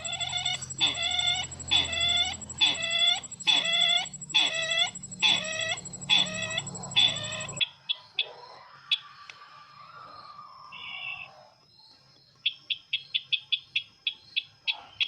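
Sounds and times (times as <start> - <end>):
faint chirping: 0.0 - 7.6
faint high whine: 0.0 - 7.6
short ringing bird calls: 0.0 - 7.6.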